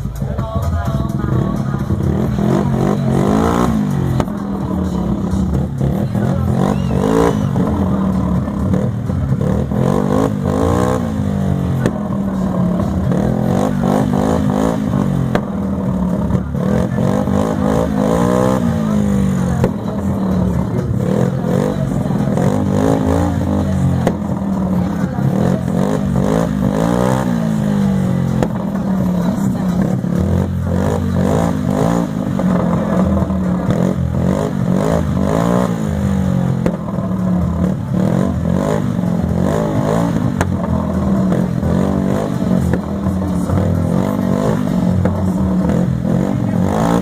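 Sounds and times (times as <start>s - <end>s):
voice in music: 0.0s - 36.6s
heavy bass line: 0.0s - 47.0s
loud distorted car stereo music: 0.0s - 47.0s.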